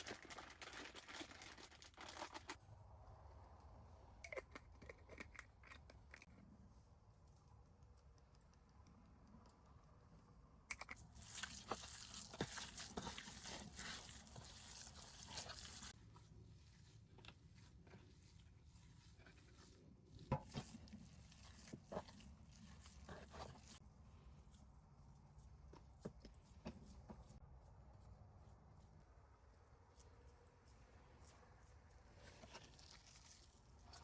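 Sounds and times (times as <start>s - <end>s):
paper rustling and tearing: 0.0s - 2.6s.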